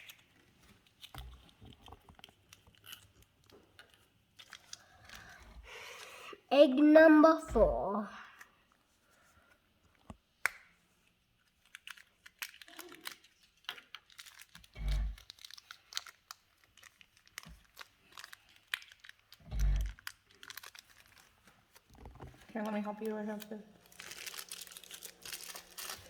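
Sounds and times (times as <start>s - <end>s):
plastic toy egg crinkling and clicking: 0.0s - 6.2s, 11.4s - 26.0s
bag rustling: 23.8s - 26.0s.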